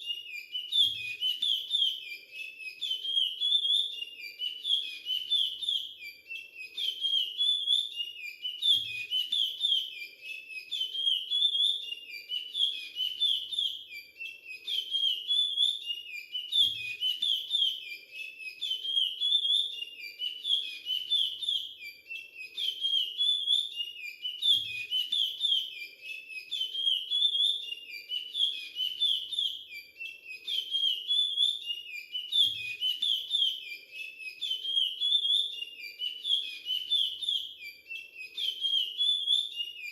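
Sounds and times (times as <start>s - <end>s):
finch singing whistled notes: 0.0s - 39.9s.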